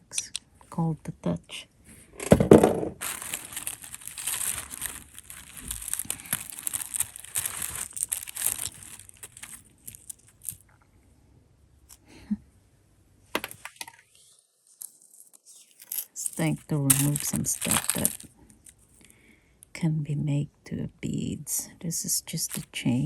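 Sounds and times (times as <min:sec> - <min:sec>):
packaging crinkling and rustling: 0:02.4 - 0:10.6, 0:14.8 - 0:18.8, 0:22.5 - 0:22.7.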